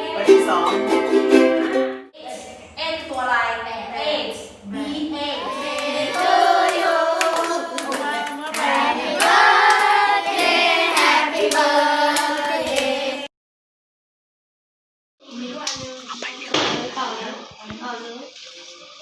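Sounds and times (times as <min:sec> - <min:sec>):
group singing together: 0:04.0 - 0:13.3
hand clapping: 0:05.6 - 0:13.0.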